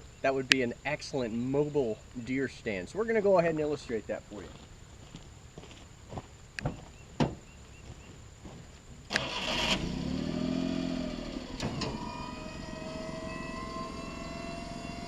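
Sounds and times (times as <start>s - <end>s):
steady whine: 6.1s - 15.0s
small truck engine starting and running: 9.1s - 15.0s.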